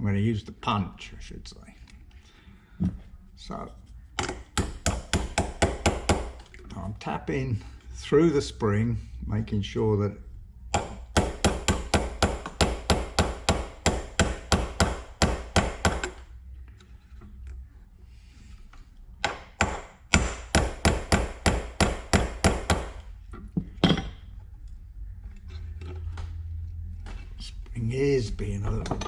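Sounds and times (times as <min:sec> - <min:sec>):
hammer tapping metal punch: 0:04.2 - 0:06.4, 0:10.7 - 0:16.2, 0:19.2 - 0:23.0
hard hammer strike: 0:04.5 - 0:06.4, 0:10.7 - 0:16.2, 0:19.2 - 0:23.0.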